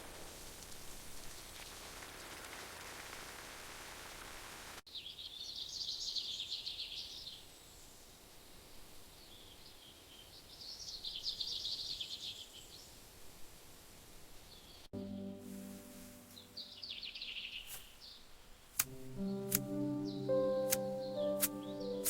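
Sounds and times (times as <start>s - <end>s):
songbird twittering chirps: 4.9s - 7.9s, 9.1s - 12.9s, 14.5s - 22.0s
steady hiss: 12.6s - 16.8s, 17.5s - 22.0s.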